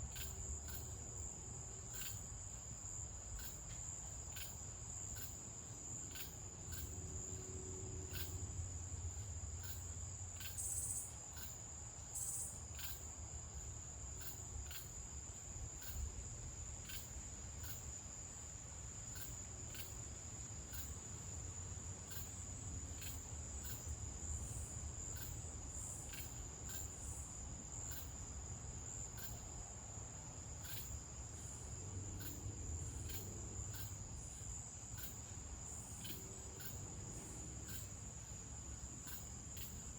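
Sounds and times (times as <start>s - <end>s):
crickets trilling: 0.0s - 39.9s
sharp cricket chirps: 0.0s - 39.9s.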